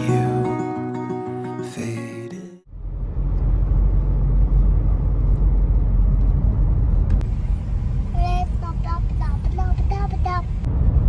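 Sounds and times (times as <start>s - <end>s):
car driving rumble: 2.7s - 11.0s
child's voice: 8.1s - 10.6s.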